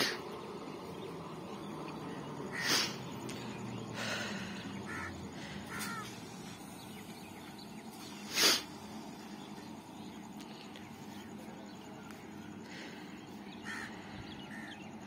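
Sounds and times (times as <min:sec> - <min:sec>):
electric train rumbling: 0:00.0 - 0:14.7
faint bird calls: 0:00.0 - 0:15.0
crow cawing: 0:02.5 - 0:03.0, 0:04.0 - 0:06.4, 0:13.6 - 0:14.9.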